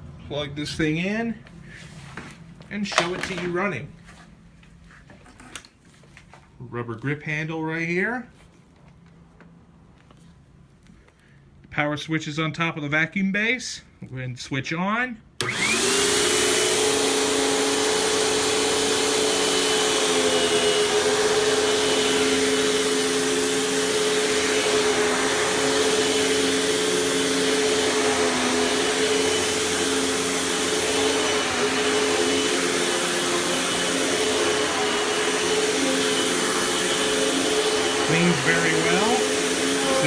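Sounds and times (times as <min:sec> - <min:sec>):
vacuum cleaner running: 0:02.9 - 0:03.7, 0:15.4 - 0:40.0.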